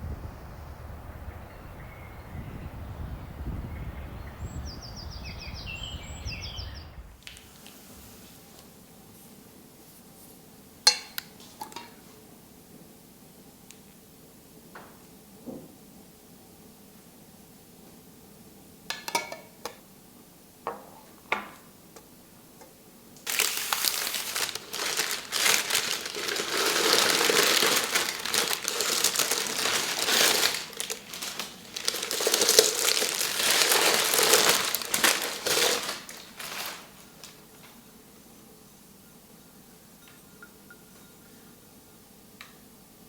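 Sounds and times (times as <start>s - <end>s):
crinkly material crumpling: 23.2s - 37.8s.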